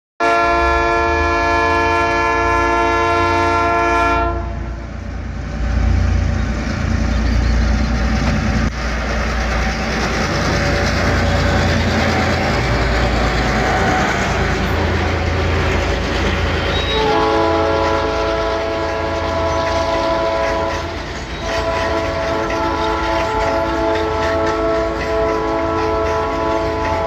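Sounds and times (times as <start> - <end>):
locomotive horn blast: 0.2 - 4.9, 16.6 - 27.0
train rail noise: 0.2 - 27.0
diesel engines rumbling: 0.6 - 27.0.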